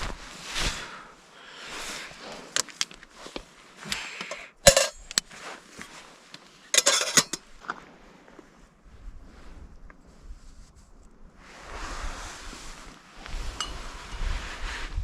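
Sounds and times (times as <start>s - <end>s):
metal cookware clinking: 4.7s - 5.2s, 6.8s - 7.4s.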